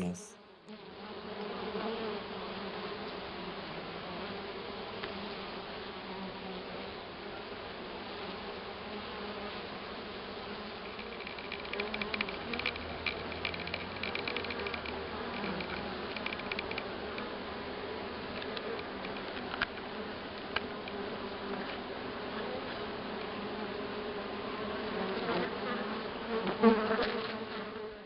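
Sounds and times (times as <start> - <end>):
bees humming: 8.0 - 27.9
faint clicks: 10.8 - 17.3, 18.3 - 21.0.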